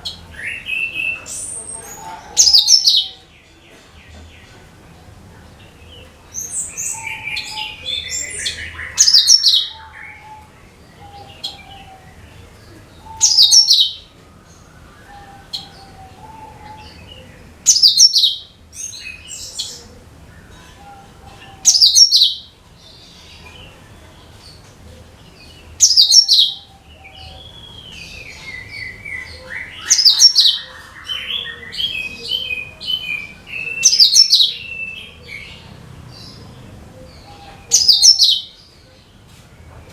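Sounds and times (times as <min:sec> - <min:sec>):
soft bird chirps and warbling: 0:00.0 - 0:04.6, 0:05.5 - 0:39.2
bird song rapid high chattering: 0:05.9 - 0:10.2, 0:13.0 - 0:14.0, 0:17.6 - 0:19.8, 0:21.6 - 0:24.6, 0:25.4 - 0:36.5, 0:37.7 - 0:38.6.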